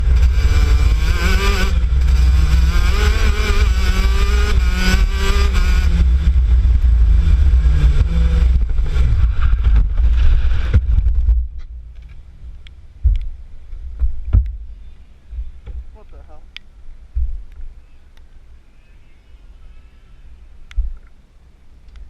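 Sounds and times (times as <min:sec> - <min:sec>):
kart engine revving: 0:00.0 - 0:10.9
heavy low rumble: 0:00.0 - 0:17.8.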